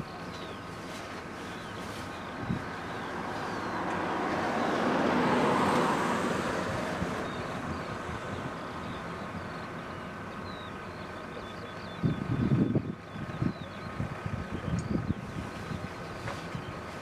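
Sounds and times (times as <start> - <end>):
bird chirps: 7.1 - 16.9.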